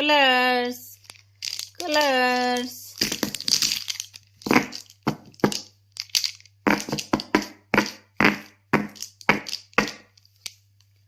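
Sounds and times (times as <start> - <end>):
sharp cracking and crunching: 2.9 - 10.6.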